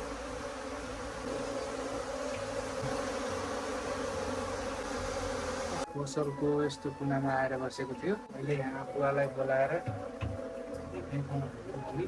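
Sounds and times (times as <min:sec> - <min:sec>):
bee swarm buzzing: 0:00.0 - 0:05.9.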